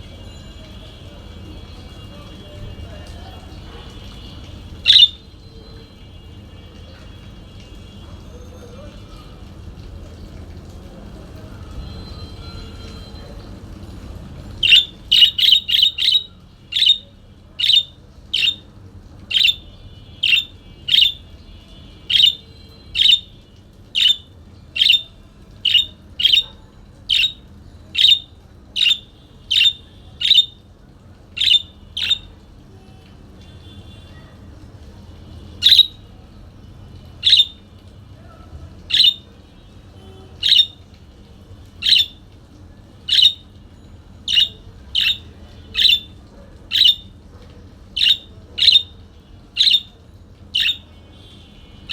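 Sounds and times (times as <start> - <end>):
parakeet squawking: 4.1 - 5.3, 14.6 - 21.3, 22.0 - 30.6, 31.3 - 32.4, 35.5 - 36.1, 37.2 - 37.7, 38.8 - 40.8, 41.8 - 42.2, 43.0 - 43.6, 44.2 - 47.2, 47.9 - 51.0.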